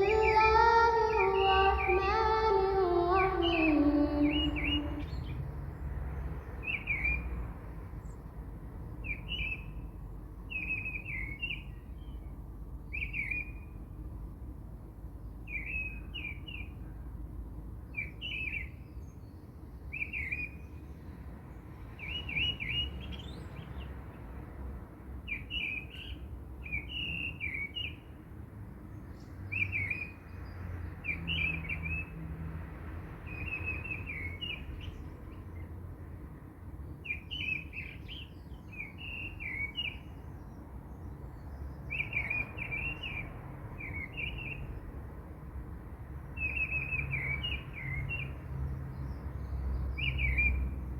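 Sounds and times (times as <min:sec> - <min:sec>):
birds chirping: 0:00.0 - 0:05.4
low background rumble: 0:00.0 - 0:05.9.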